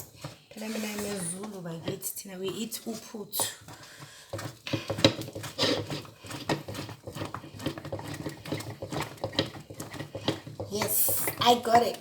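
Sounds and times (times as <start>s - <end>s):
spoon stirring thick porridge: 0.0s - 12.0s.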